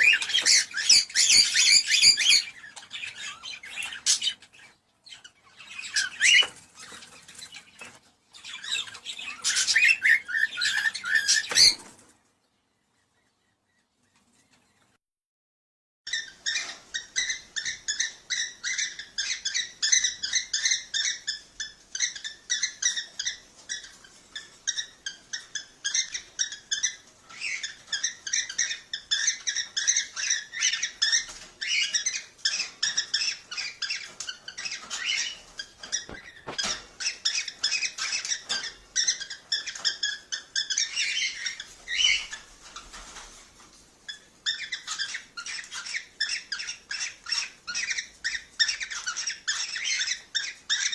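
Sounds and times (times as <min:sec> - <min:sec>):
cockatiels chirping: 0:00.0 - 0:12.0, 0:16.1 - 0:43.5, 0:44.1 - 0:50.9.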